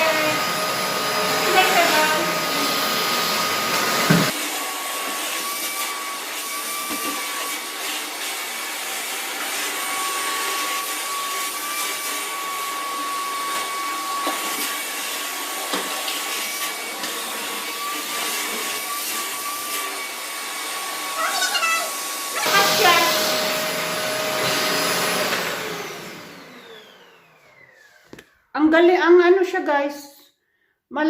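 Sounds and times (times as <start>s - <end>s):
vacuum cleaner whining: 0.0s - 28.4s.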